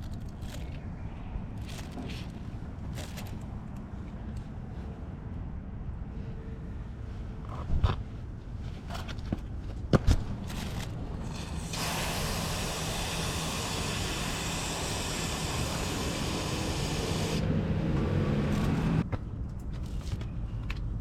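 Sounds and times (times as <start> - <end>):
spray hiss: 11.3 - 17.4.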